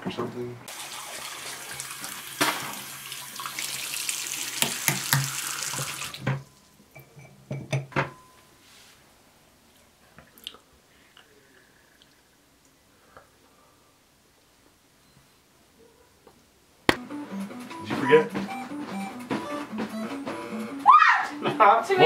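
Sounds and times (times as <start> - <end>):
tap water running into sink: 0.7 - 6.4.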